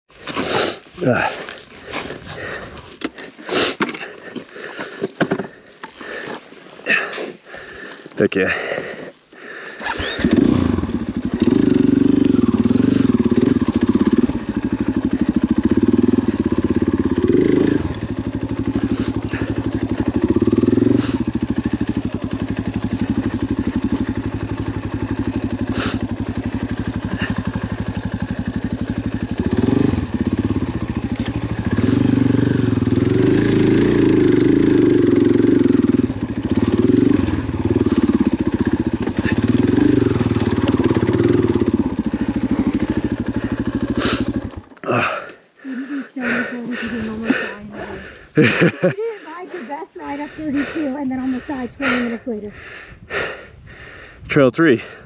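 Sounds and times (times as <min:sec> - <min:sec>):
dirt bike engine revving: 0:09.7 - 0:53.5.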